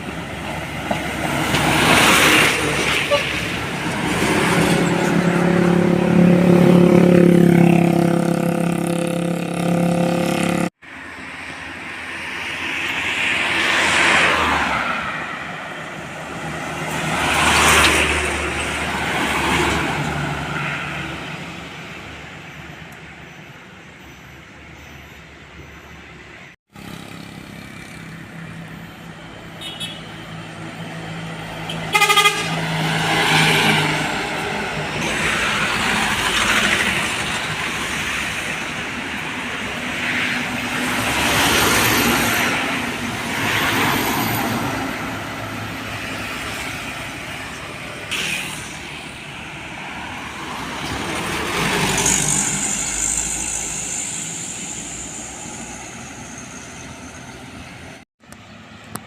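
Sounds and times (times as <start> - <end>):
trucks passing: 0.0 - 59.0
truck horn blasts: 29.6 - 30.2, 31.7 - 32.8.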